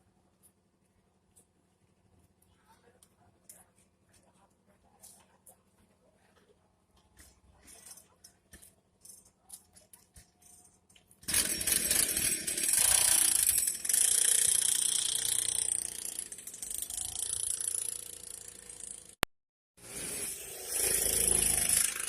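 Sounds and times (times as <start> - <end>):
small petrol engine rattling: 11.2 - 19.2.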